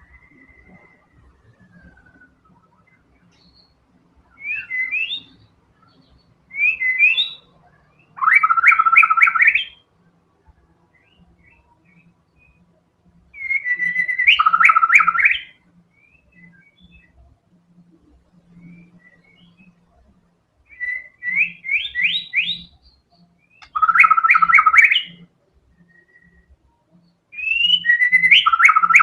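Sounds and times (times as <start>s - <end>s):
bird singing whistled phrases: 0.0s - 9.8s, 13.4s - 17.2s, 20.7s - 25.2s, 25.8s - 26.5s, 27.3s - 29.0s.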